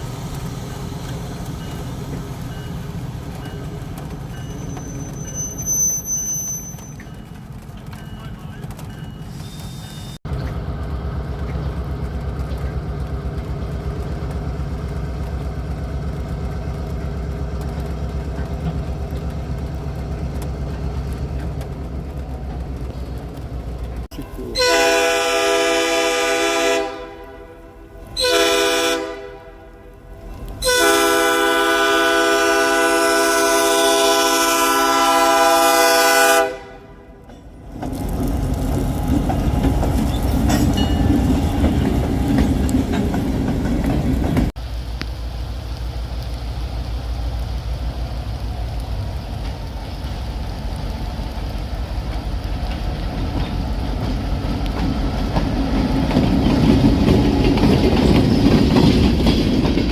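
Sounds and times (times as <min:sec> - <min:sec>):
train horn blasts: 0:24.5 - 0:30.0, 0:30.6 - 0:37.2.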